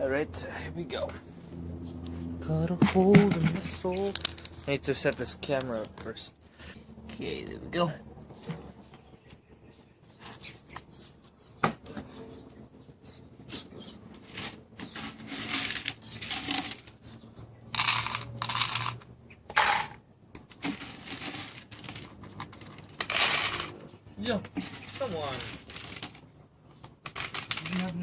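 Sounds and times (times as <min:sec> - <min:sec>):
kibble rattling out of bag: 0:20.6 - 0:23.7, 0:27.1 - 0:27.9.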